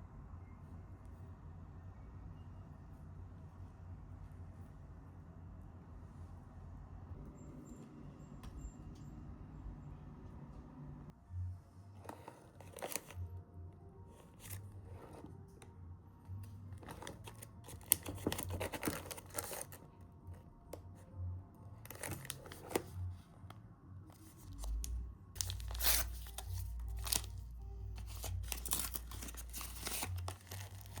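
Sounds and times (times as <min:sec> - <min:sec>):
crinkly wrapping being torn: 0:24.3 - 0:31.0.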